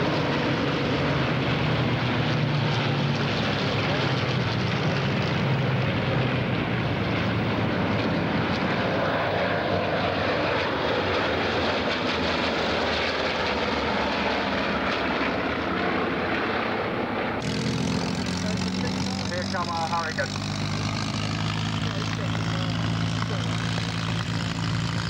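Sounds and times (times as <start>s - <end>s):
propeller planes droning overhead: 0.0s - 25.0s.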